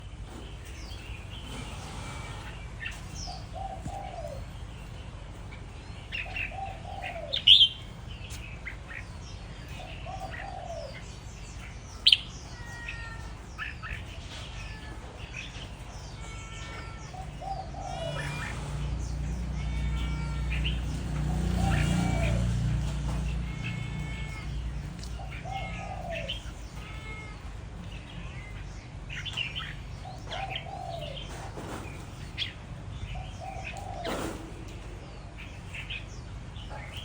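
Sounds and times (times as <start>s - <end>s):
loud sharp bird notes: 0.0s - 37.0s
bird chirping and whistling: 6.4s - 8.4s, 11.6s - 14.4s.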